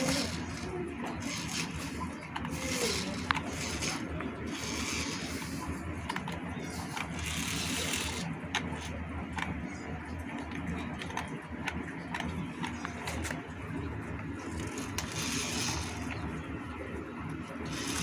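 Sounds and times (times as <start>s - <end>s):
toy tractor motor humming: 0.0s - 13.6s, 14.2s - 16.7s, 17.5s - 18.0s.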